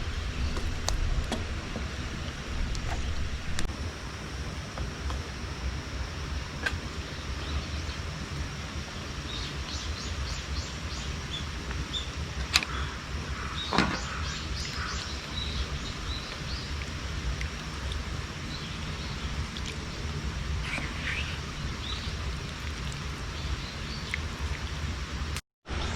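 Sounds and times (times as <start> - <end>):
steady low rumble: 0.0 - 25.9
birds chirping: 8.9 - 25.0.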